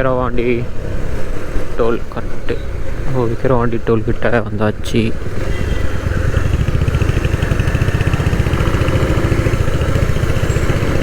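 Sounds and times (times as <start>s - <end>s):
motorcycle engine running: 4.7s - 11.0s.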